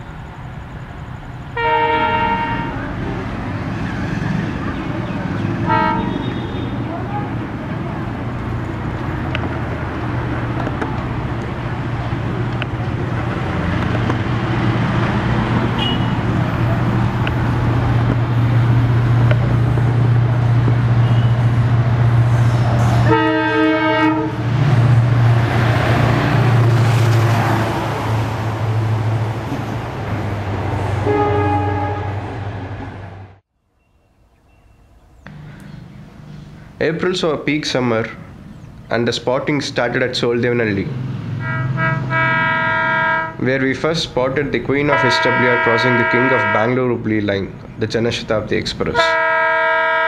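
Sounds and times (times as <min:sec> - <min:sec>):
train running drone: 0:00.0 - 0:33.4, 0:40.8 - 0:46.6
train horn blast: 0:01.6 - 0:02.9, 0:05.6 - 0:06.9, 0:15.7 - 0:16.2, 0:23.0 - 0:24.5, 0:31.0 - 0:32.4, 0:41.4 - 0:43.4, 0:44.9 - 0:46.8, 0:49.0 - 0:50.0.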